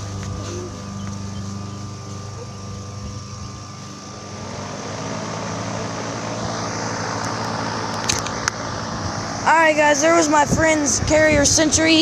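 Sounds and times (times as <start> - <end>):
compressor humming: 0.0 - 12.0
fan rushing air: 0.0 - 12.0.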